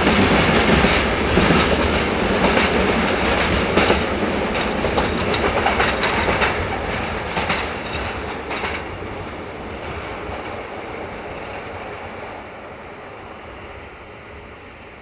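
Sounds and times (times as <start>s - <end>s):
train wheels clattering over joints: 0.0s - 11.9s
train rumble: 0.0s - 15.0s.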